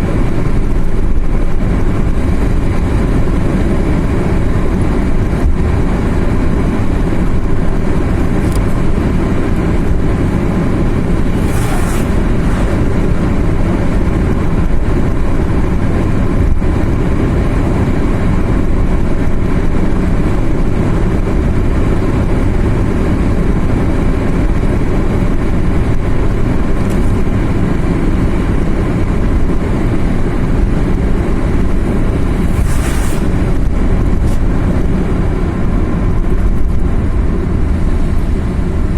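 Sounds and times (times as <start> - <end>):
car engine and tyre rumble: 0.0 - 38.9
brief rushing hiss: 11.2 - 14.0, 32.3 - 34.4.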